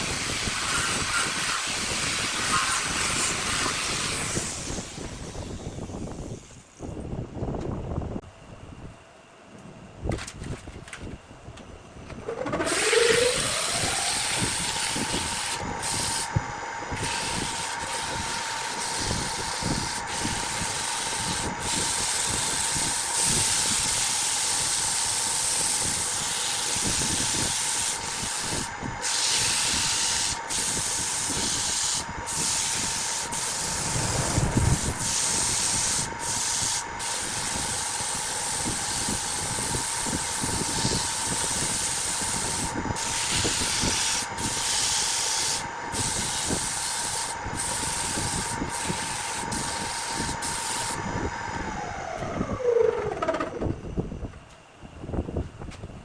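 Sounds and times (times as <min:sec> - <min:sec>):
wood lathe motor whine: 0:00.0 - 0:06.5, 0:12.0 - 0:54.0
abrasive rubbing on spinning wood: 0:12.2 - 0:14.3.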